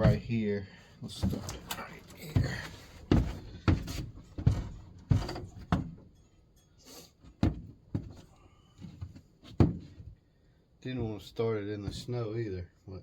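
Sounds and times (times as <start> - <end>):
gear thumping inside trailer: 0.0 - 6.2.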